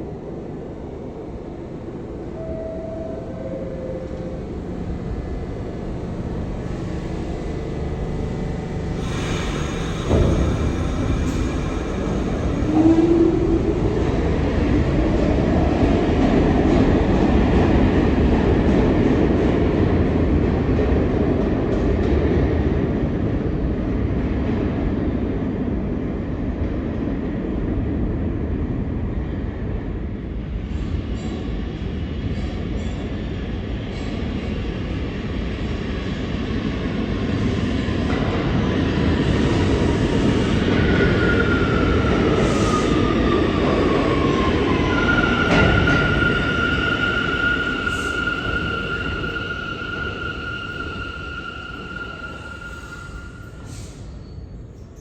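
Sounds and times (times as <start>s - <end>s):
thin falling whine: 0.0s - 15.9s
train wheels rumbling on rails: 0.0s - 55.0s.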